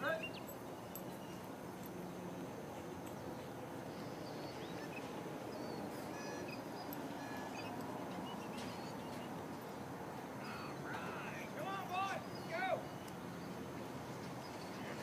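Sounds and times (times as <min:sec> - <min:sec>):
bird chirps: 0:00.0 - 0:01.5, 0:03.0 - 0:09.8, 0:12.0 - 0:15.0
steady outdoor background noise: 0:00.0 - 0:15.0.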